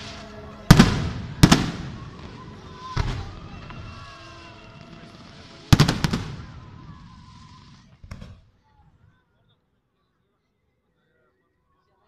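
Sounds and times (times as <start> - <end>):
firework shells bursting: 0.0 - 8.4.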